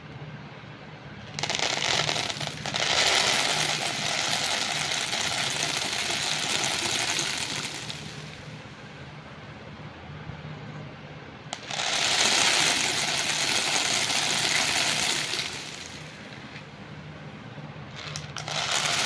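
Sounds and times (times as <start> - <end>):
small beads clattering: 1.3 - 8.4, 11.6 - 16.2, 18.0 - 19.0.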